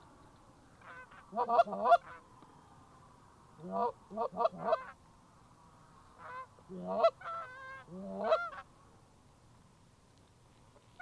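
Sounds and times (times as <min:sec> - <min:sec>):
geese honking: 0:00.8 - 0:02.2, 0:03.6 - 0:05.0, 0:06.2 - 0:08.6.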